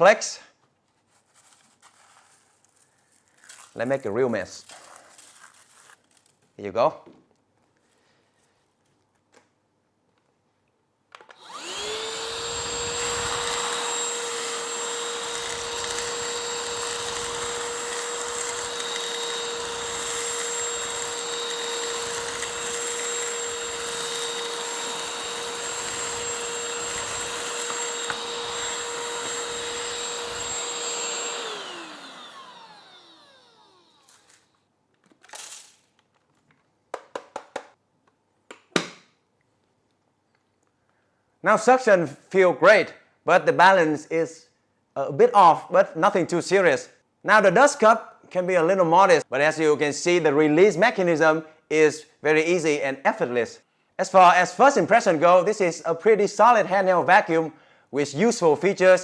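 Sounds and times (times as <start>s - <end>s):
hand vacuum whining: 11.2s - 34.5s
vacuum sucking up cereal: 11.3s - 34.4s.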